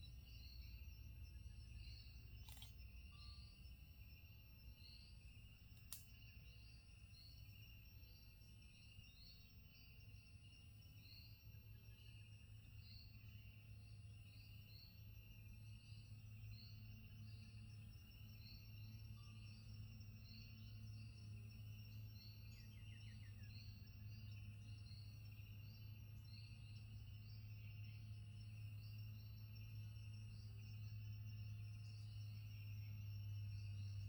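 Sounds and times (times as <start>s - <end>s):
high insect drone: 0.0s - 34.0s
sharp click: 2.4s - 2.9s, 5.8s - 6.2s.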